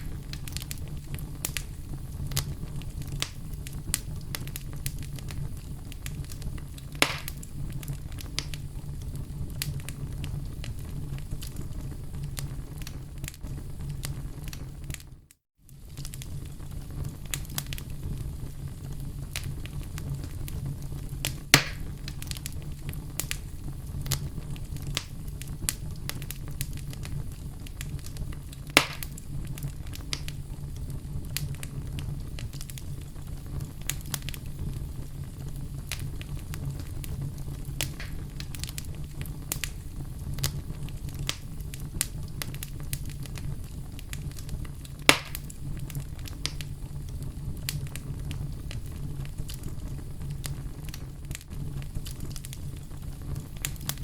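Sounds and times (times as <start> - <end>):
low steady fire rumble: 0.0 - 54.0
sharp fire pops: 0.0 - 54.0
wood fire crackling: 0.0 - 54.0.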